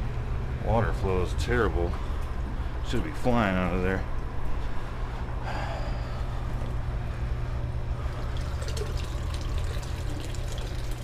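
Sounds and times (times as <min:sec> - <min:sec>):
sump pump humming: 0:00.0 - 0:11.0
water trickling and pouring: 0:08.1 - 0:11.0.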